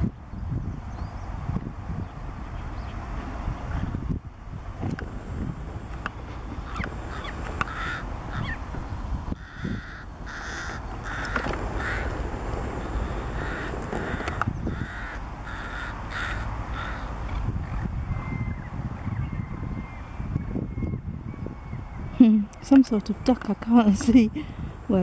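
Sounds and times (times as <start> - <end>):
bird giving rough calls: 6.6 - 8.7, 9.4 - 17.3.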